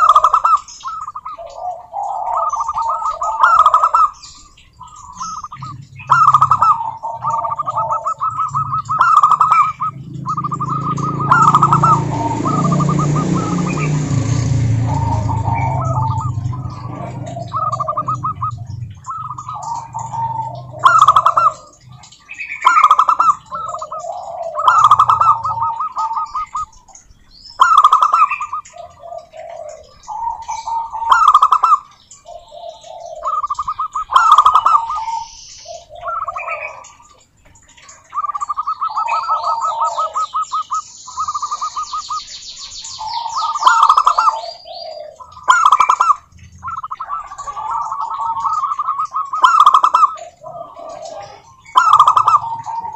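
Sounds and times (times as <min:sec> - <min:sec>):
doves cooing: 0:00.0 - 0:52.9
small bird chirping: 0:00.0 - 0:52.9.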